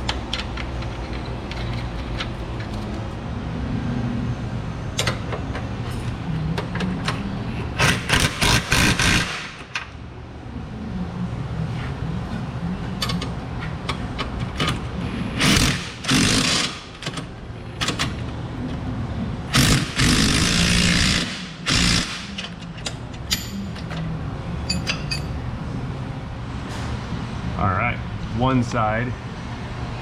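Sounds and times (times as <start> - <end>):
steady low hum: 0.0 - 30.0
impact wrench bursts: 7.8 - 9.6, 15.4 - 17.0, 19.5 - 22.5
metal tool clicks and clinks: 22.4 - 24.0, 24.6 - 25.3.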